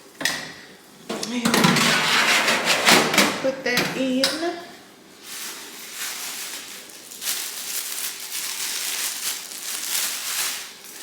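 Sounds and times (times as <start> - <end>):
packaging rustling and crinkling: 5.2 - 11.0.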